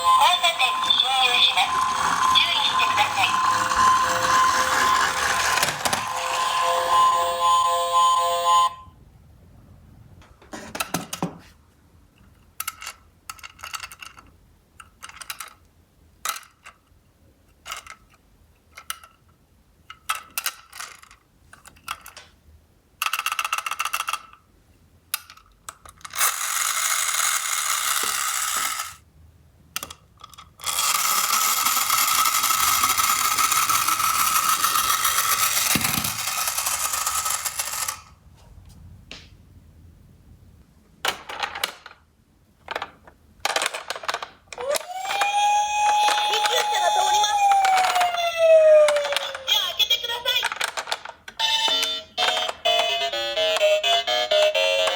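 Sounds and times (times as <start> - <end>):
small wheels rolling on cardboard: 0.0 - 7.4, 26.2 - 29.0, 30.6 - 38.1
toy cars clicking and knocking: 0.0 - 7.4, 12.2 - 22.4, 23.0 - 24.5, 25.1 - 29.0, 29.8 - 38.1, 41.0 - 42.0, 42.6 - 54.9.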